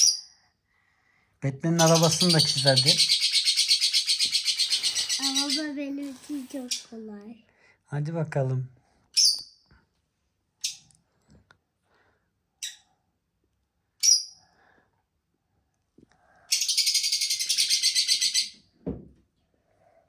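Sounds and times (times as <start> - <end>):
small bird chirping and trilling: 0.0 - 0.4, 1.6 - 7.2, 9.1 - 9.7, 10.6 - 11.0, 12.6 - 12.9, 14.0 - 14.4, 16.5 - 18.6.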